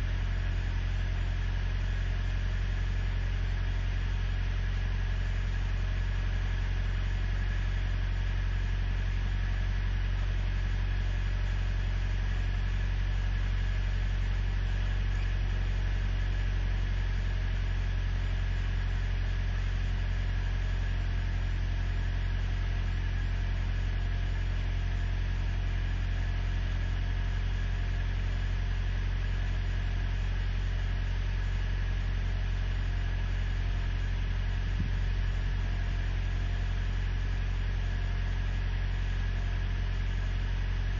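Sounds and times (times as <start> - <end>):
truck engine idling: 33.4 - 36.9.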